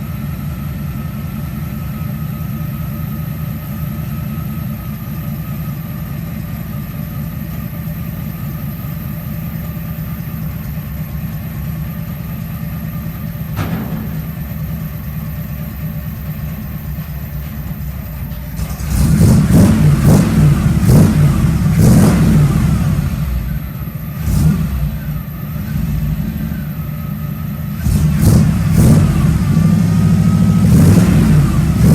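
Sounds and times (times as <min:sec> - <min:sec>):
car engine idling lumpy: 0:00.0 - 0:31.9
engine revving: 0:18.6 - 0:26.7, 0:27.7 - 0:31.9.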